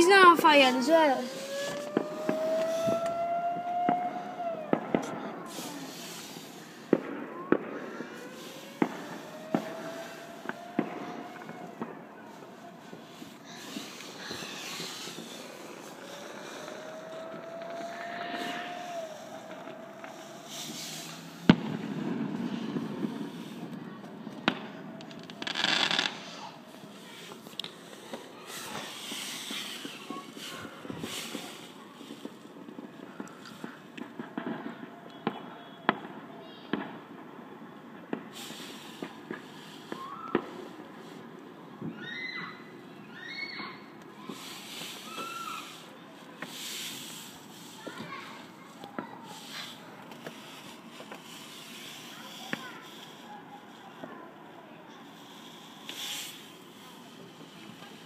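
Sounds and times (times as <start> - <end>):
rushing hiss: 0.0 - 3.8, 5.0 - 23.7, 25.2 - 32.6, 38.3 - 41.3, 44.2 - 54.0, 55.1 - 58.0
fireworks bangs and cracks: 0.0 - 58.0
distant vehicle engine accelerating: 1.2 - 11.8, 12.9 - 26.2.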